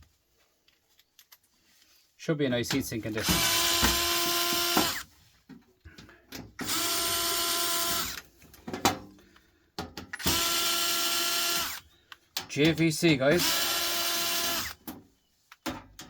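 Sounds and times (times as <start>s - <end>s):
cordless drill whining: 3.2s - 5.1s, 6.6s - 8.3s, 10.2s - 12.0s, 13.3s - 14.8s.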